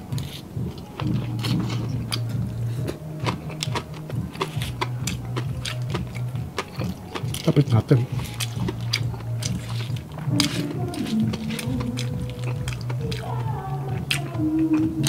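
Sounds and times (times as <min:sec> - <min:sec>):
crunching of fried food: 0:00.0 - 0:15.0
steady deep hum: 0:00.0 - 0:15.0.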